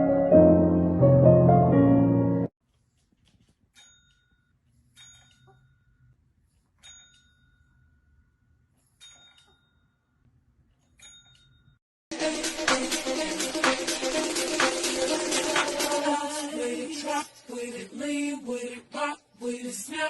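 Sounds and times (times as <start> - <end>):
small bell dinging: 3.8 - 6.1, 6.8 - 10.2, 10.9 - 11.8.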